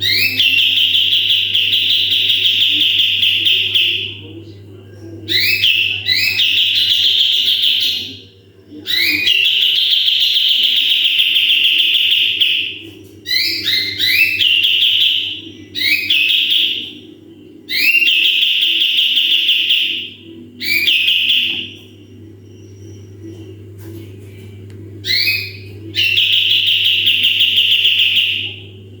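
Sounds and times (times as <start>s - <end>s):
songbird trilling song: 0.0s - 4.2s, 5.3s - 8.2s, 8.9s - 17.0s, 25.0s - 28.6s
steady low hum: 0.0s - 29.0s.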